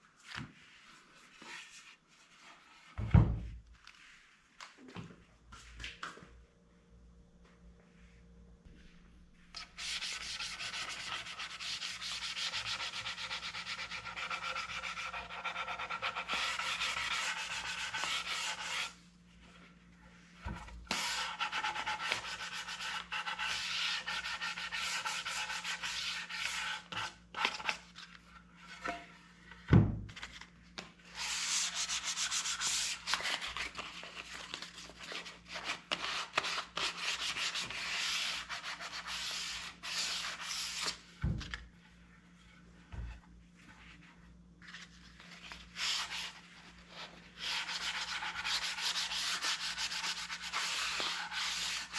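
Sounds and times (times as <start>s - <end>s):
sandpaper sanding wood: 9.8s - 19.0s, 21.0s - 27.0s, 31.2s - 33.1s, 47.4s - 51.9s.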